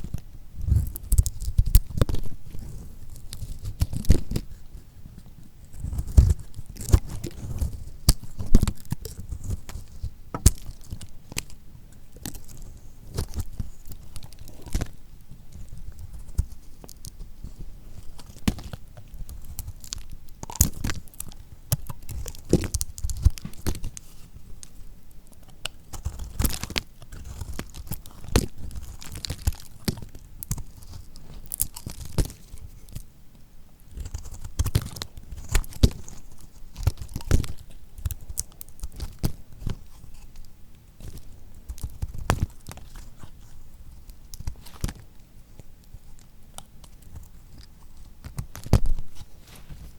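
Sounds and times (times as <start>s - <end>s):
knife cutting crunchy soap: 5.7s - 33.1s.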